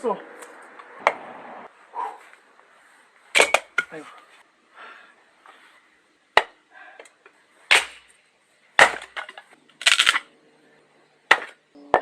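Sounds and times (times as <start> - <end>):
axe splitting wood: 7.7 - 8.1, 8.8 - 10.2, 11.3 - 12.0
wood clattering: 8.8 - 10.3.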